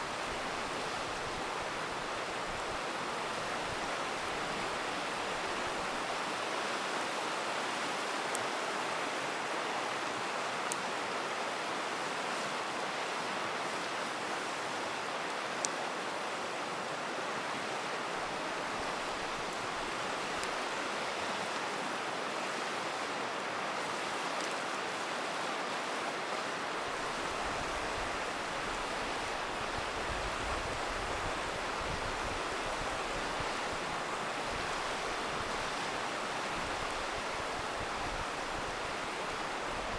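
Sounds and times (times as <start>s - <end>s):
river water rushing: 0.0s - 39.9s
campfire crackling and popping: 18.8s - 20.7s.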